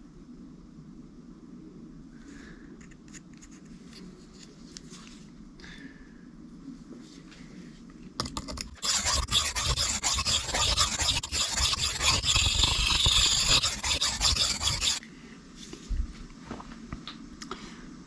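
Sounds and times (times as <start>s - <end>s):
knife scraping on sharpening plate: 8.6s - 15.0s.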